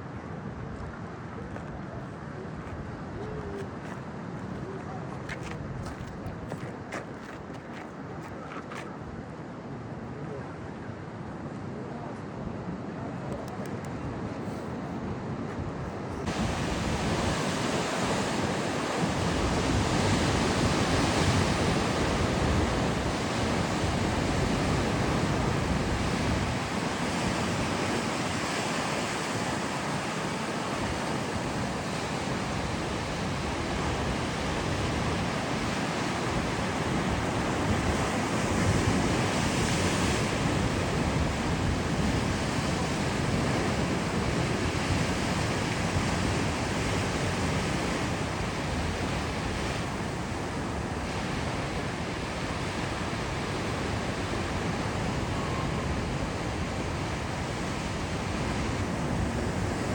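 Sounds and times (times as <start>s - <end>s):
waves breaking: 13.2s - 59.9s
wind buffeting microphone: 13.3s - 59.9s.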